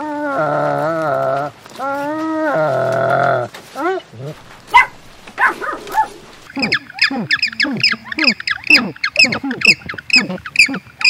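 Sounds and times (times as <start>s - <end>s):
birds squawking: 4.3s - 11.0s.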